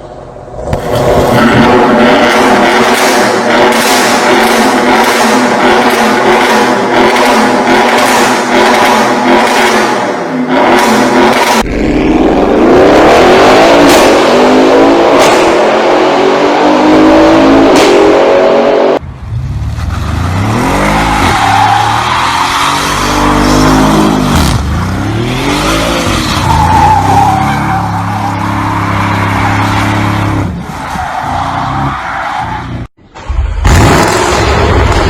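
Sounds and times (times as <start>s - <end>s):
exhaust cracks: 33.1s - 35.0s.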